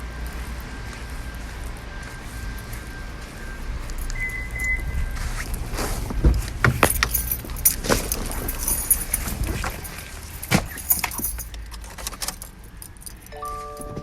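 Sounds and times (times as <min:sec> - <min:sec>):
car electronic warning chime: 0:00.9 - 0:05.4, 0:13.3 - 0:14.0
handling clicks and knocks: 0:06.3 - 0:14.0
keys jangling: 0:06.7 - 0:13.8.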